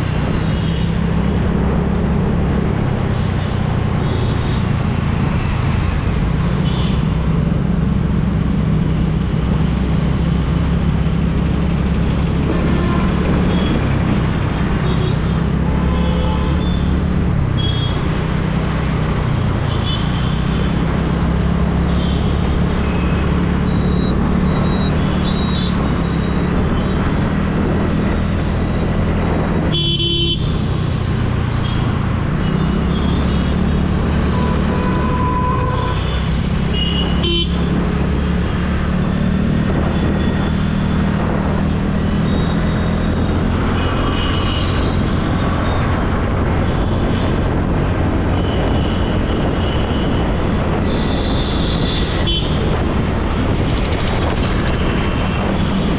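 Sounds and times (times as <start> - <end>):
scooter engine and wind rumble: 0.0 - 55.9
vehicle horns tooting: 12.5 - 13.8, 14.8 - 18.0, 29.7 - 30.5, 34.2 - 37.7, 48.4 - 52.7.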